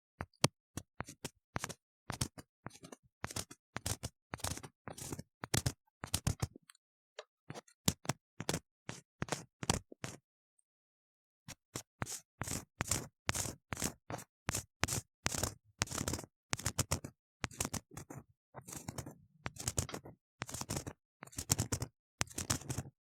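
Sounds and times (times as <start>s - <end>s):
tool scraping inside ear model: 12.0s - 22.9s.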